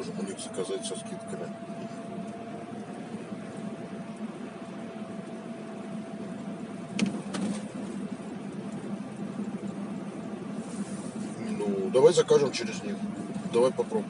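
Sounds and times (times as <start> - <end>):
car engine hum from inside cabin: 0.0 - 14.0.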